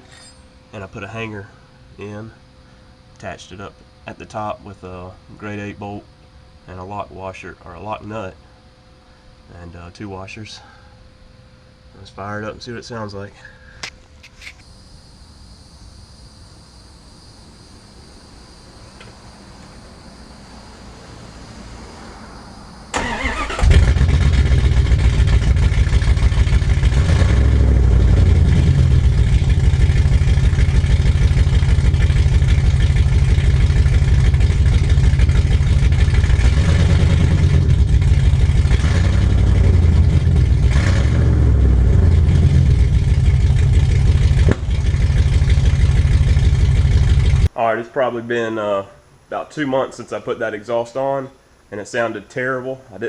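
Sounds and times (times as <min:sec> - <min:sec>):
vee eight engine running: 0:19.0 - 0:47.5.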